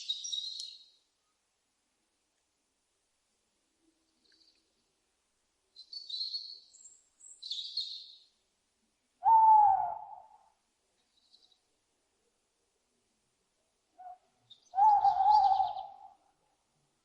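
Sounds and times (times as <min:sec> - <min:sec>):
high thin bird chirps: 0:00.0 - 0:00.9
owl hoot: 0:09.2 - 0:10.5, 0:14.0 - 0:16.2.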